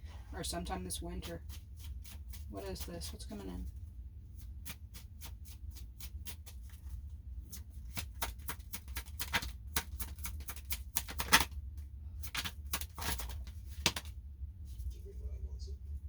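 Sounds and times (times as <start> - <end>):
low steady hum: 0.0 - 16.0
cards being shuffled: 4.4 - 11.6, 12.2 - 14.2.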